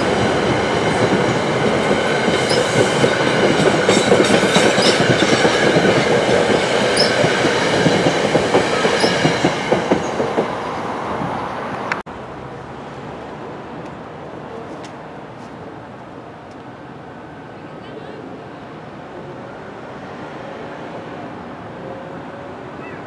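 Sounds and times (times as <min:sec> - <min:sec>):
train wheels clicking over rail joints: 0:00.5 - 0:10.6.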